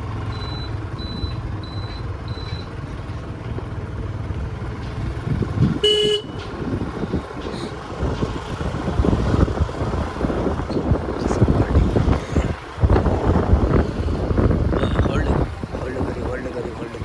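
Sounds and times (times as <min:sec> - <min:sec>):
vehicle engines rumbling: 0:00.0 - 0:17.0
vehicle horn toot: 0:05.8 - 0:06.6, 0:14.7 - 0:15.4.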